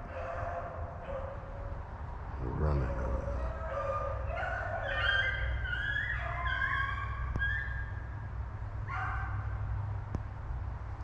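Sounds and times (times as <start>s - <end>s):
hounds baying: 0.0s - 1.8s, 2.7s - 8.0s, 8.9s - 9.4s.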